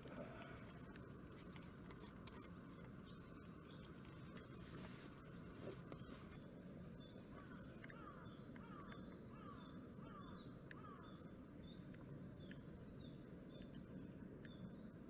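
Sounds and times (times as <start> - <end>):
faint clicks: 7.6 - 14.7.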